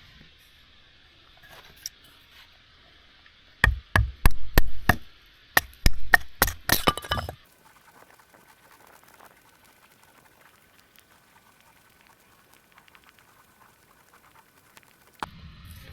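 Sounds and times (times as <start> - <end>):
sharp knocks with dull thuds: 3.6 - 6.7.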